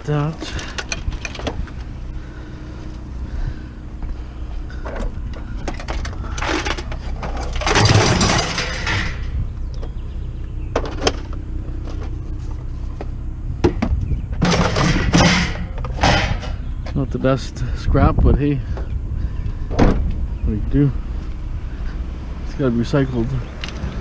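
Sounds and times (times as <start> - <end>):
vehicle engine idling: 0.0 - 24.0
scraping clatter: 4.7 - 10.0, 14.4 - 16.9
metal scrap knocks and clicks: 4.9 - 9.4, 13.6 - 16.6.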